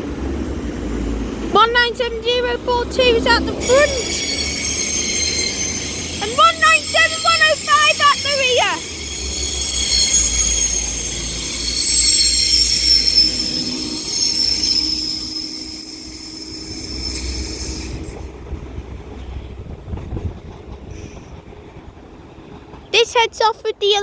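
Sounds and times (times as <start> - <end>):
diesel train engine rumble: 0.0 - 24.0
high wheel squeal: 3.0 - 18.3.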